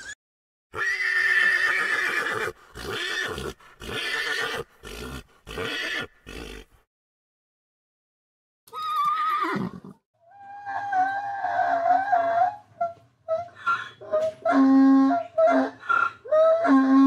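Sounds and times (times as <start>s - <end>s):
horse whinnying: 0.7s - 6.7s, 8.7s - 12.6s.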